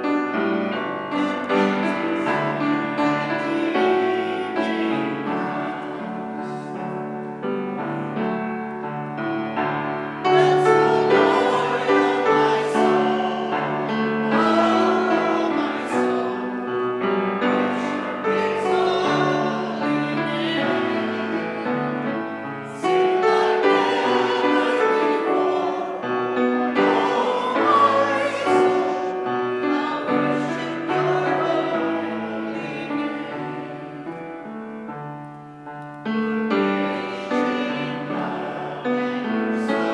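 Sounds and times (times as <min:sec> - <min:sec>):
piano music: 0:00.0 - 0:39.9
person singing with vibrato: 0:10.2 - 0:34.5.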